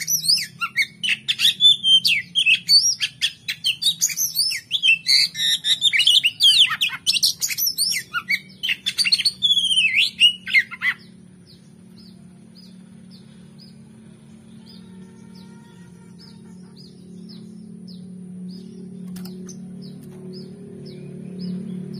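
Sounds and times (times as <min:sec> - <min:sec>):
bird singing whistles and trills: 0:00.0 - 0:13.8
low steady hum: 0:00.0 - 0:21.9.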